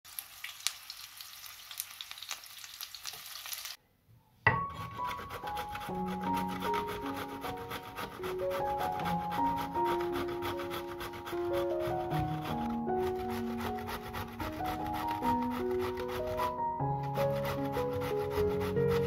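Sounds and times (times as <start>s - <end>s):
fritters sizzling in hot oil: 0.1s - 3.8s
background music: 4.5s - 19.0s
knife cutting on wooden board: 4.7s - 19.0s
zucchini rasping on box grater: 4.8s - 19.0s.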